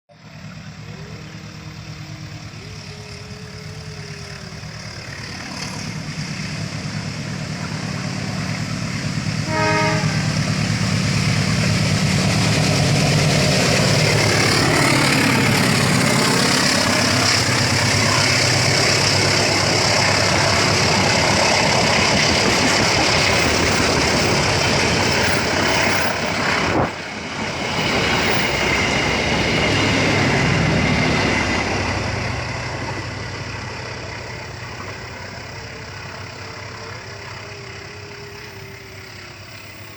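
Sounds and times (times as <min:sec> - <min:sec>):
train running past: 0:00.1 - 0:39.9
train horn toot: 0:09.2 - 0:11.0.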